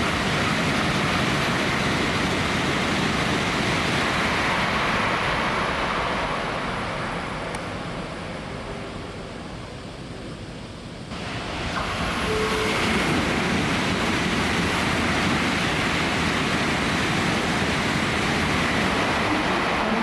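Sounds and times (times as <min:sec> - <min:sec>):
high-speed train rushing past: 0:00.0 - 0:20.0
faint high whistle: 0:12.1 - 0:13.1.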